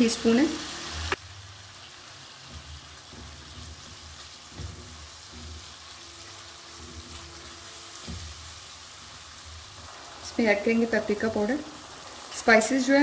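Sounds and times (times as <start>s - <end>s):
oil sizzling in a wok: 0.0s - 13.0s
spatula knocking against pan: 2.4s - 6.0s
wooden spatula scraping pan: 2.4s - 9.8s.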